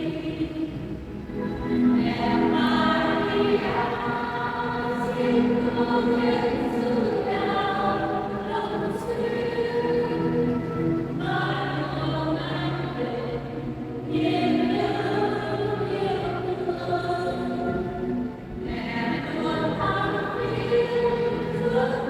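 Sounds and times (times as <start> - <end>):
choir singing a hymn: 0.0 - 22.0.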